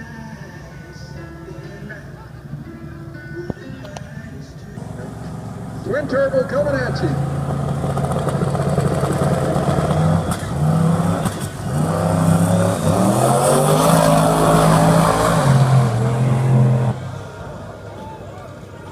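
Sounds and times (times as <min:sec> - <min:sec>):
car engine running hard: 0:04.8 - 0:18.9.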